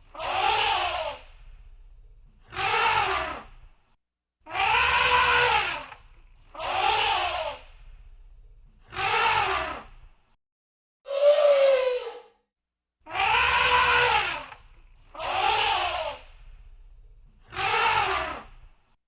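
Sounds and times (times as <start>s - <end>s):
faint low rumble: 1.2s - 2.5s, 7.6s - 8.9s, 16.2s - 17.5s
elephant trumpeting: 4.5s - 5.9s, 13.1s - 14.5s.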